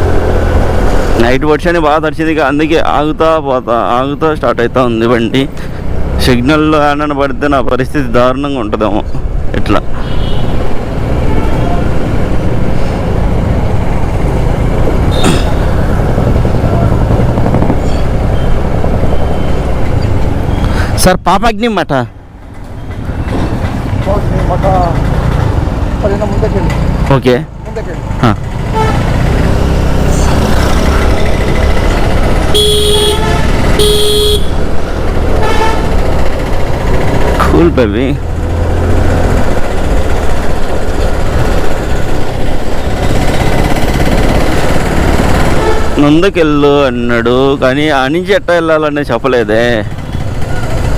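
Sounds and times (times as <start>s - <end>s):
road and wind noise: 0.0s - 50.9s
vehicle horn honks: 10.0s - 10.6s, 28.7s - 29.1s, 32.5s - 34.6s, 35.4s - 35.9s, 45.5s - 46.0s
motorcycle engine running: 10.8s - 20.6s, 22.5s - 46.2s, 49.3s - 50.9s.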